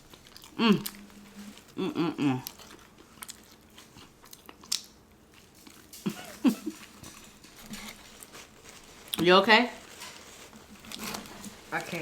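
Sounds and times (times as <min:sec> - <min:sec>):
chewing crispy fried chicken: 0:00.0 - 0:12.0.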